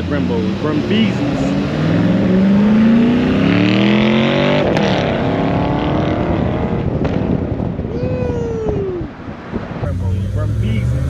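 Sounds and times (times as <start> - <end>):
car engine accelerating: 0.0 - 7.3, 9.8 - 11.0.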